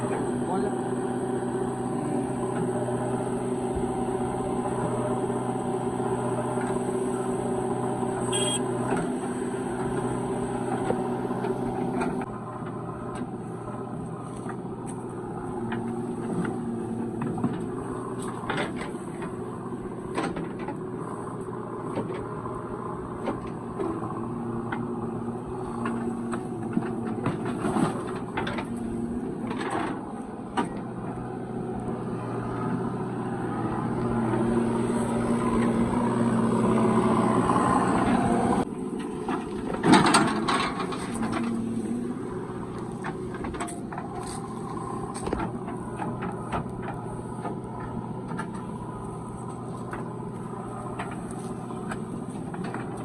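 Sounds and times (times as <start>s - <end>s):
heavy diesel machinery running: 0.0s - 53.0s
knocks and clanks: 39.0s - 53.0s.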